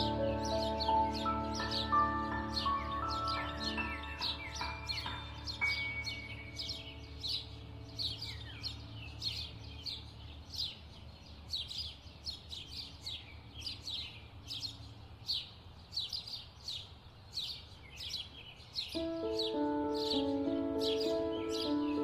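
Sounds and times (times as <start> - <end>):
soft instrumental music: 0.0 - 11.5, 19.0 - 22.0
small birds chirping: 0.0 - 22.0.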